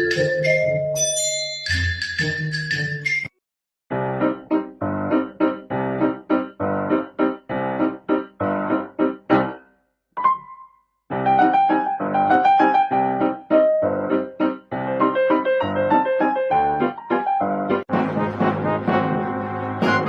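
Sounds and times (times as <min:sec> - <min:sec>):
piano notes in steady rhythm: 0:03.9 - 0:20.0.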